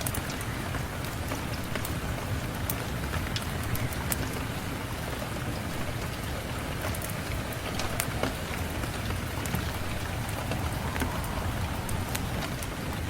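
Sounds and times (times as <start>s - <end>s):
steady rain: 0.0s - 13.0s
low rumble: 8.9s - 13.0s.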